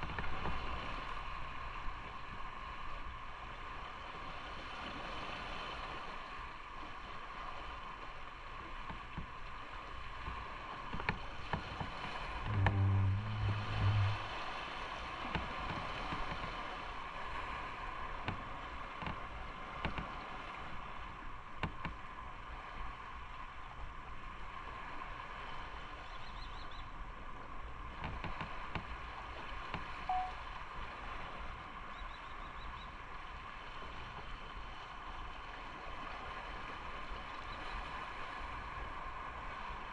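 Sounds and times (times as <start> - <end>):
wind noise: 11.5 - 14.8
loud low-pitched sound: 12.5 - 14.5.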